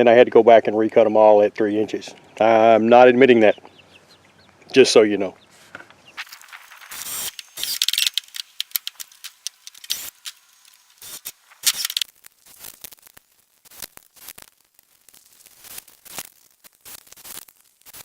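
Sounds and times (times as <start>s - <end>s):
sharp clicks: 5.8s - 12.1s.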